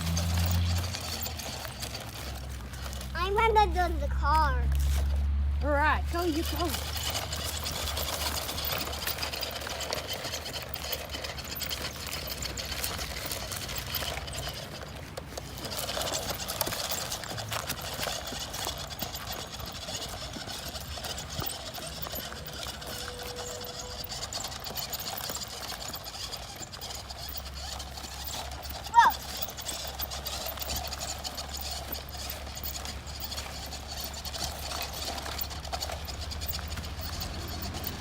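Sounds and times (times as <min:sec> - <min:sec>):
toy electric motor whirring: 0:00.0 - 0:38.0
wheels clicking and rattling: 0:00.0 - 0:38.0.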